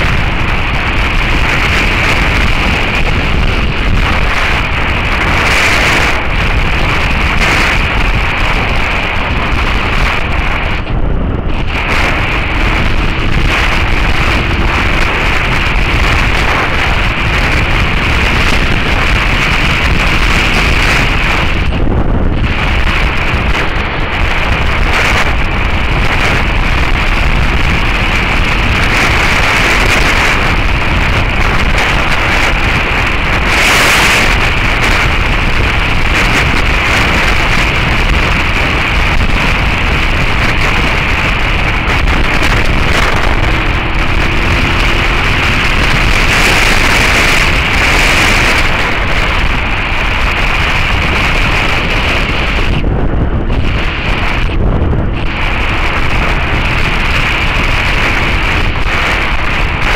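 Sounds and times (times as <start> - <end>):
heavy wind noise on microphone: 0.0 - 59.9
motorcycle engine: 0.0 - 59.9.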